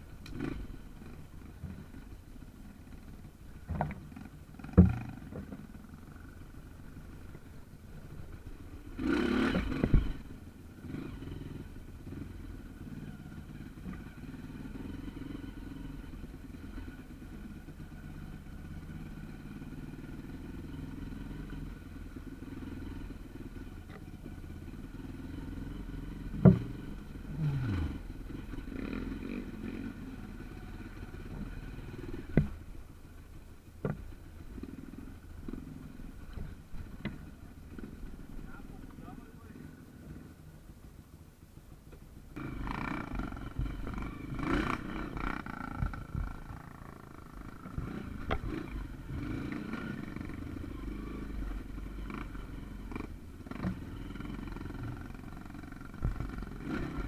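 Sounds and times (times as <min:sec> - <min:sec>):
motorcycle engine idling: 0:00.0 - 0:57.0
sharp knocks and clatters: 0:03.6 - 0:05.7.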